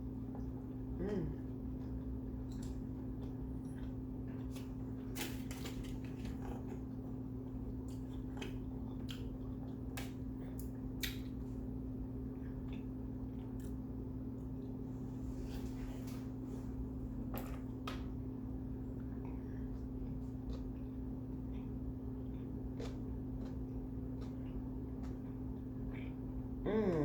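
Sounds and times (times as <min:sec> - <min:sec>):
low electrical hum: 0:00.0 - 0:27.0
person chewing with mouth clicks: 0:00.4 - 0:04.7, 0:19.2 - 0:27.0.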